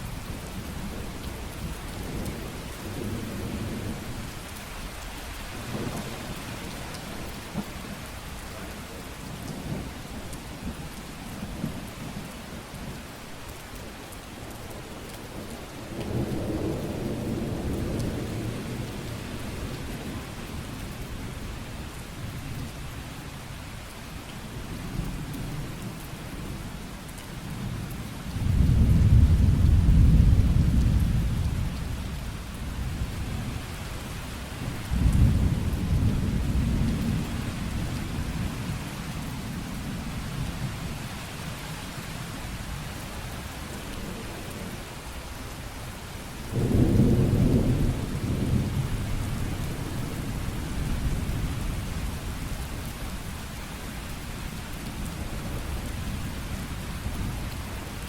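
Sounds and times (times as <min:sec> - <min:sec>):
heavy rain: 0:00.0 - 0:58.0
low rolls of thunder: 0:05.5 - 0:10.0, 0:15.4 - 0:20.9, 0:27.5 - 0:33.6, 0:34.6 - 0:41.0, 0:46.5 - 0:52.4.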